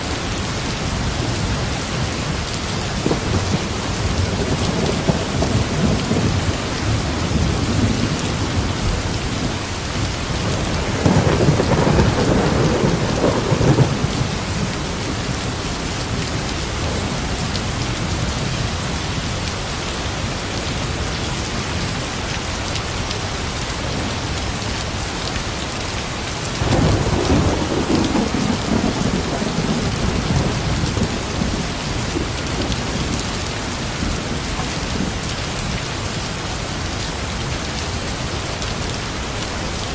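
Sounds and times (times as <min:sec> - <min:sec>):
steady rain: 0:00.0 - 0:39.9
low rolls of thunder: 0:02.9 - 0:09.6, 0:10.2 - 0:17.4, 0:26.6 - 0:35.4.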